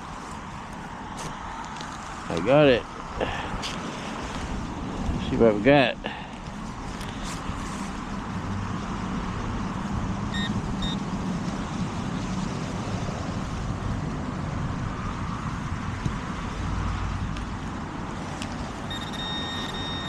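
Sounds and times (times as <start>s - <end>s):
traffic on a busy road: 0.0s - 20.0s
metal detector beeps: 10.3s - 11.0s, 18.9s - 20.0s.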